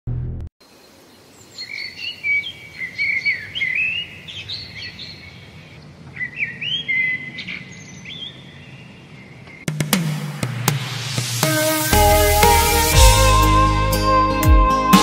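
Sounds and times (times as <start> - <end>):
birds chirping and trilling: 0.6 - 9.7.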